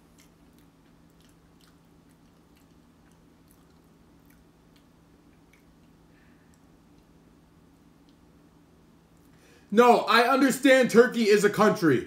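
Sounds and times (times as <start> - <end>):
faint chewing: 0.0 - 8.5
low steady hum: 0.0 - 12.0.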